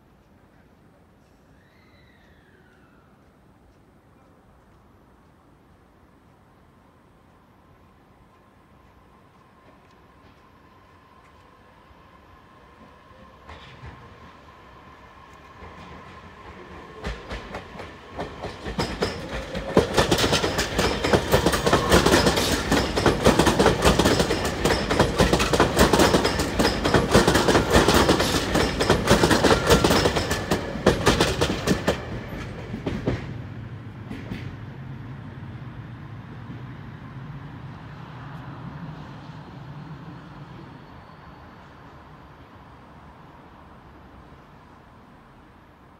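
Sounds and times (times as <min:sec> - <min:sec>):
train wheels clicking over rail joints: 0:12.8 - 0:35.0.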